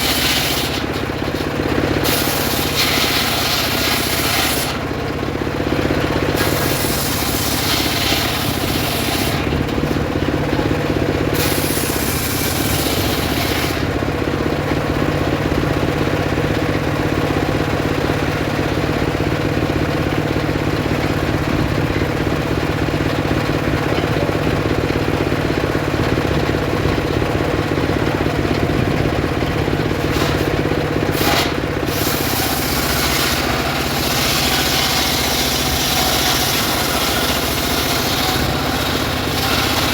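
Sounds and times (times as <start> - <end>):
saw blade cutting wood: 0.0 - 4.9, 6.0 - 10.0, 11.0 - 14.0, 29.8 - 39.9
saw motor running: 0.0 - 39.9.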